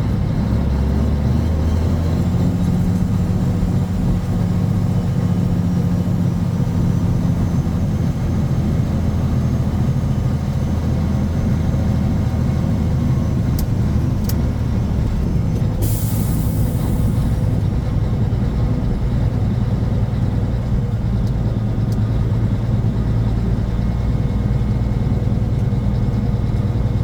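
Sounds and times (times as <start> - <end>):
diesel truck engine droning: 0.0 - 27.0
loud hiss of air: 15.8 - 17.6.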